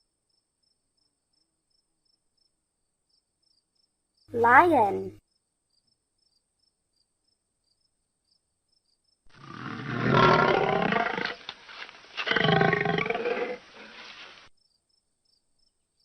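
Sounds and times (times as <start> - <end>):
lion roaring: 9.4 - 11.5, 12.2 - 14.2.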